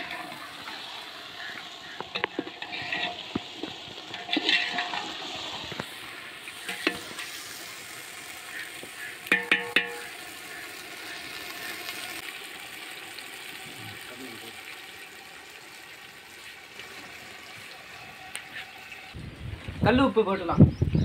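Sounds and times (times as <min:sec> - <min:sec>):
onions and tomatoes sizzling: 0:00.0 - 0:20.6
metal ladle scraping a pot: 0:01.4 - 0:05.8, 0:06.5 - 0:07.3
ladle clinking against pot: 0:09.3 - 0:10.0.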